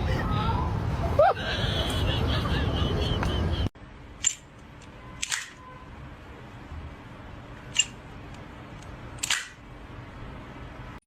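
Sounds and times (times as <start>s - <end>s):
sharp clicks: 4.2s - 5.6s, 7.7s - 9.6s.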